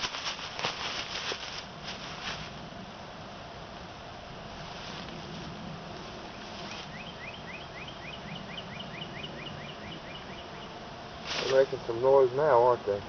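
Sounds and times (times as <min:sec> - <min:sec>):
bird chirping: 0:06.3 - 0:10.8.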